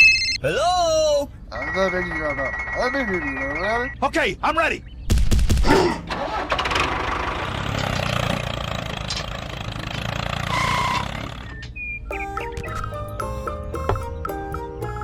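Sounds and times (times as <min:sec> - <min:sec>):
engine starting and running: 0:06.0 - 0:11.7.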